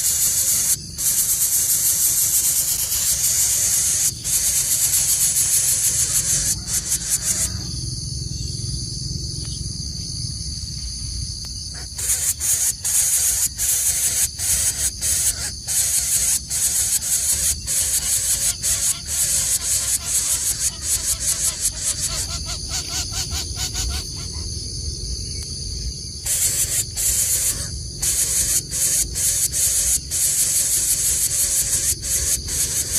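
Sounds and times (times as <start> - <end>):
cicada-like insects buzzing: 0.0 - 32.9
low rumble of wind: 0.4 - 12.0, 21.0 - 29.3.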